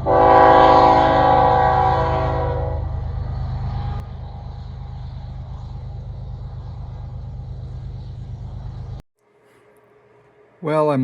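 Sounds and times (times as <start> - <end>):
toy train horn: 0.0 - 2.9
steady low hum: 0.0 - 11.0.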